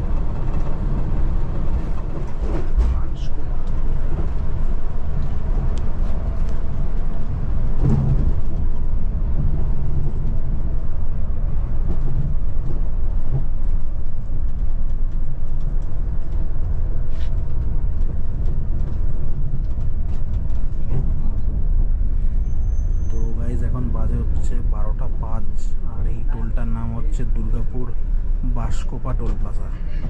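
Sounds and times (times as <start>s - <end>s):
light rattles and clicks: 0.0s - 21.9s
coach engine and road rumble: 0.0s - 30.0s.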